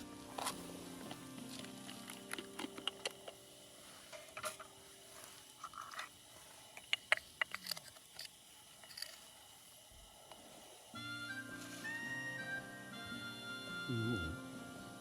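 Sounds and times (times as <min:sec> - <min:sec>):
campfire crackling: 0:00.0 - 0:13.1.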